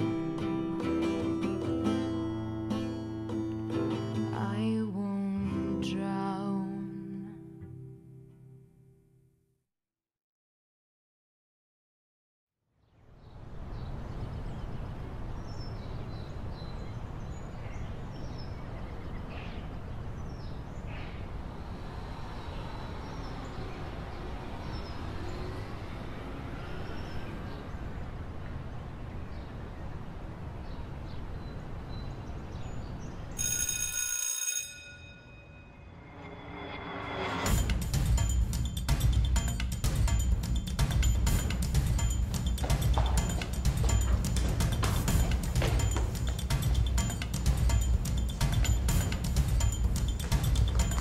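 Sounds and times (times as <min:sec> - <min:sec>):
bright ringing tone: 0:33.4 - 0:37.5.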